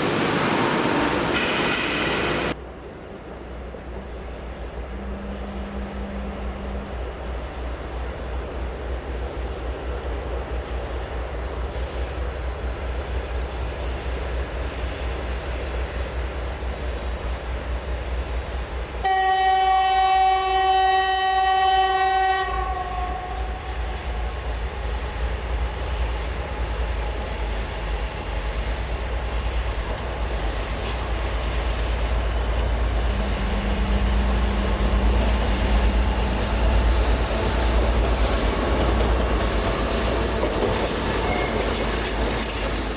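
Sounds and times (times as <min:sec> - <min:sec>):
train rumbling on rails: 0:00.0 - 0:42.9
locomotive horn blast: 0:04.9 - 0:07.2, 0:19.0 - 0:24.3.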